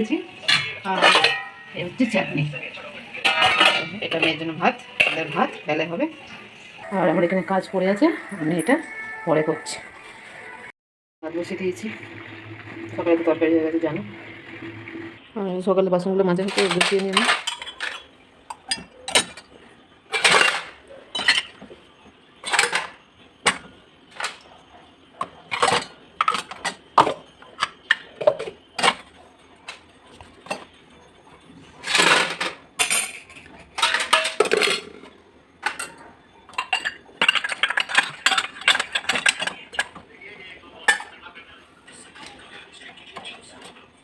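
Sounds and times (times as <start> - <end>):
dishes clinking and clattering: 0.3 - 6.6, 16.4 - 41.4
dishes scraping: 0.4 - 6.5, 16.4 - 30.8, 31.7 - 40.1, 40.8 - 41.2.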